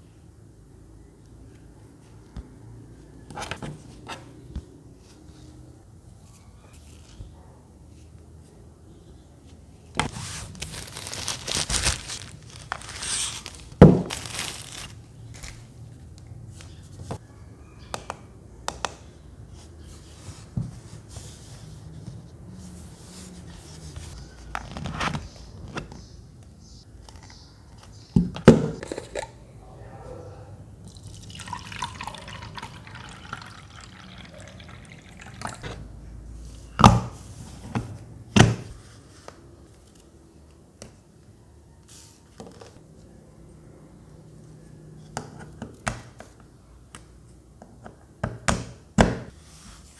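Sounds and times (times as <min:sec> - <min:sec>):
water trickling into plastic tank: 0:30.9 - 0:35.6.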